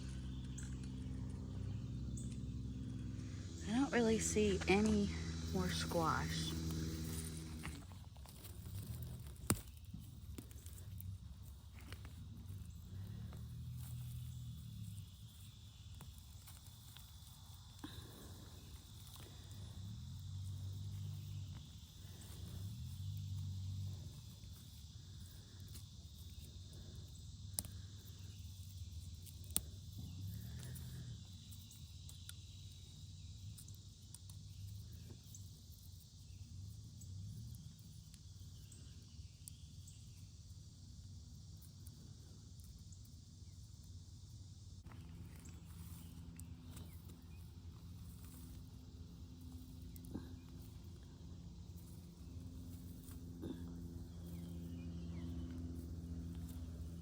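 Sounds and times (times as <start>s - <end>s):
low rumbles: 0.0s - 9.6s
cicadas droning: 0.0s - 57.0s.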